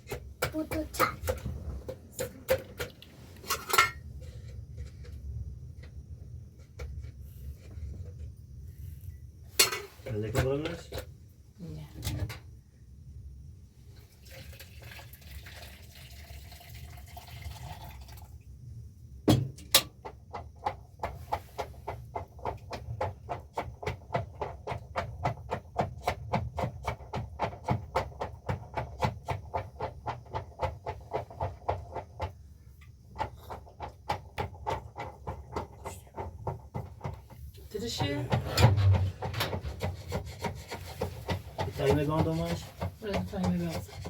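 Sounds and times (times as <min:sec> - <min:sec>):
liquid pouring: 0:14.0 - 0:18.4.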